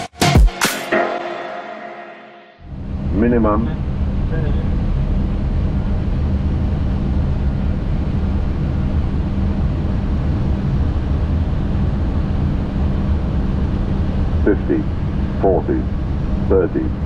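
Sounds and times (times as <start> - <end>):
airflow and engine rumble: 2.6 - 17.0
constant low hum: 2.6 - 17.0.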